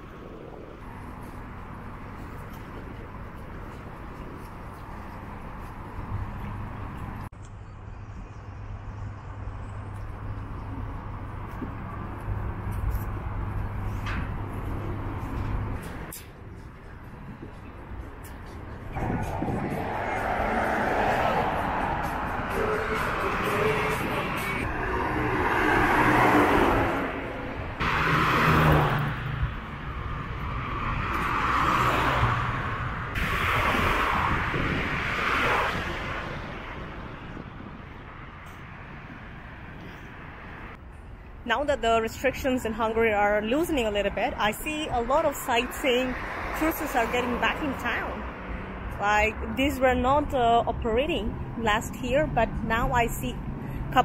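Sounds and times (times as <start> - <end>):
low rumble of passing traffic: 0.0 - 54.0.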